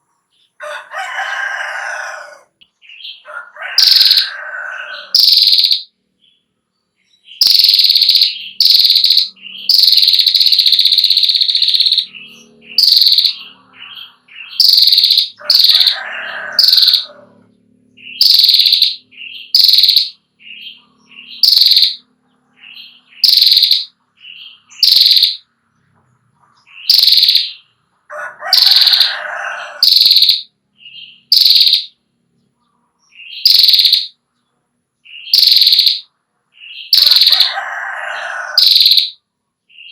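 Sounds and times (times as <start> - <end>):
bird calling high sharp notes: 3.0 - 5.9, 7.3 - 17.3, 18.0 - 25.5, 26.7 - 32.0, 33.2 - 34.2, 35.1 - 39.2.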